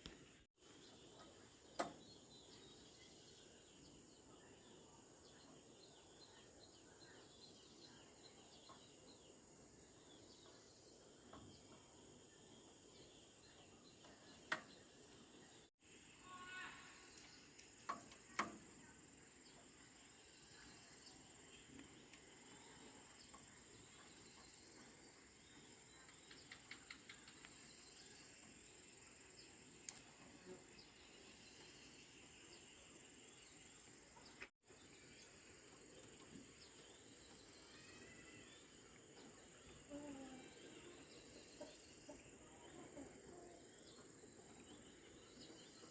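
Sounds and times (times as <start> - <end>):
bird chirp: 0.0 - 45.9.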